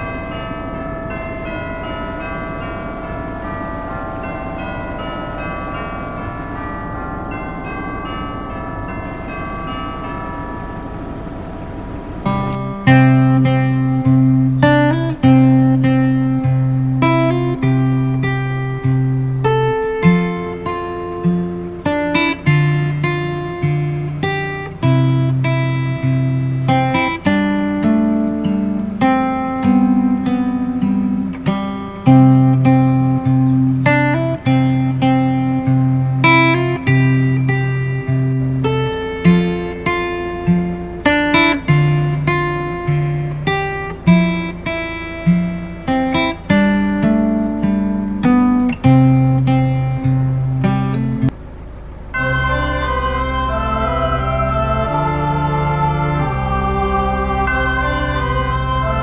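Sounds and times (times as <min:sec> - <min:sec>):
acoustic guitar tune: 0:11.7 - 0:51.3.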